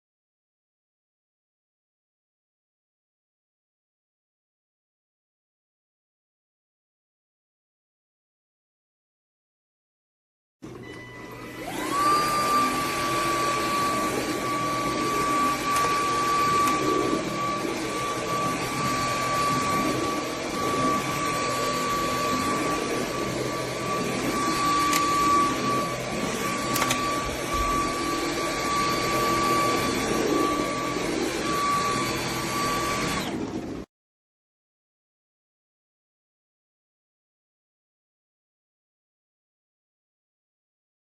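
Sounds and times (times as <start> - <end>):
vacuum cleaner motor whining: 10.6 - 33.9.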